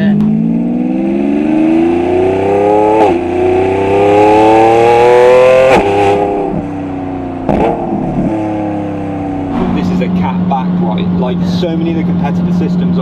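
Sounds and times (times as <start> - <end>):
car engine accelerating: 0.0 - 13.0
sharp exhaust crack: 5.7 - 11.2.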